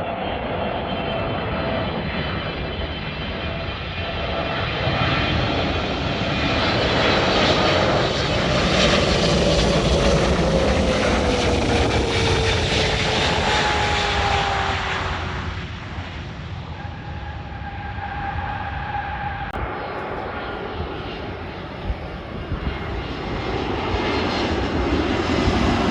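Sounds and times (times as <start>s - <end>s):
jet engine roar: 0.0s - 25.9s
jet whine falling in pitch: 10.2s - 22.0s.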